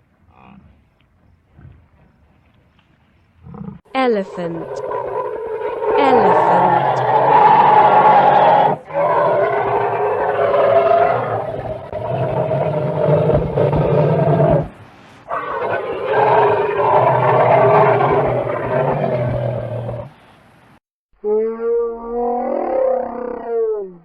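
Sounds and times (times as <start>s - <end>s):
elephant calling: 4.2s - 14.4s.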